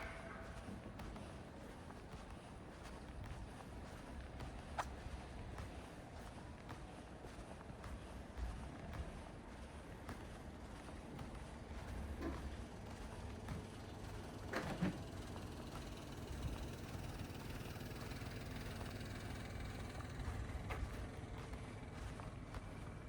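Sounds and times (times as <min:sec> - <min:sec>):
low street rumble: 0:00.0 - 0:23.0.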